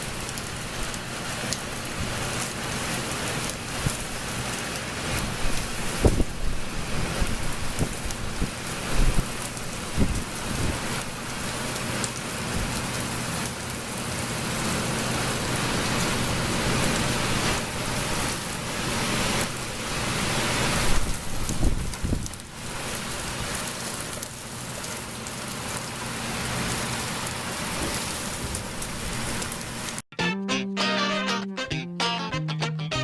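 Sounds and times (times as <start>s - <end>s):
heavy rain falling: 0.0s - 30.0s.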